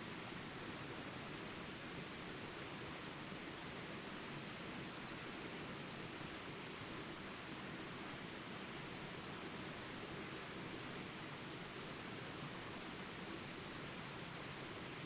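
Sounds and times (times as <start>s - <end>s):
high-pitched insect chorus: 0.0s - 4.9s
faint hiss: 0.0s - 15.0s.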